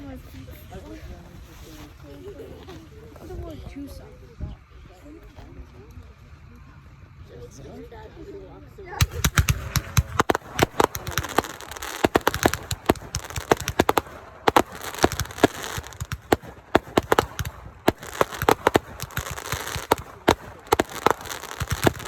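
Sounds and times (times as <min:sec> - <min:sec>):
fireworks bangs and crackles: 0:09.0 - 0:22.0
fireworks hissing: 0:09.0 - 0:22.0.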